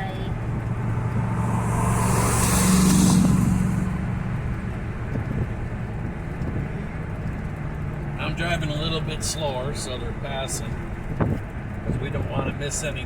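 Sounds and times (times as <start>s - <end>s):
vehicle overtaking whoosh: 0.0s - 6.4s
car road and engine rumble: 0.0s - 13.0s.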